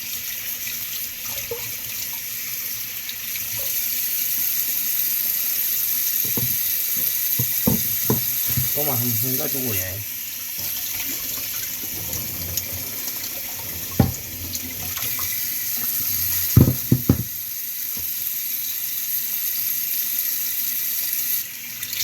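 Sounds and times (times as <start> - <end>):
tap water running into sink: 0.0 - 4.7, 6.0 - 18.4
sharp knocks: 16.5 - 17.4.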